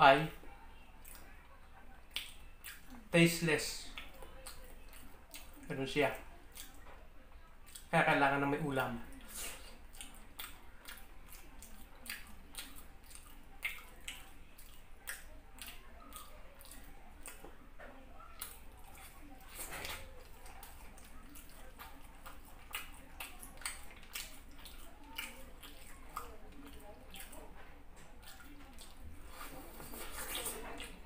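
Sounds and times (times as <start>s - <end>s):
wet mouth smacks and clicks: 2.1s - 2.9s, 11.6s - 17.4s, 22.3s - 27.4s.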